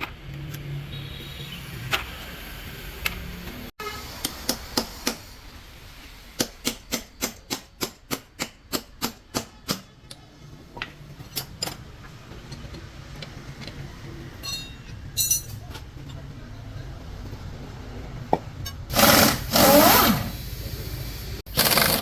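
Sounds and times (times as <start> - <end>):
ringing metallic clank: 14.4 - 15.6.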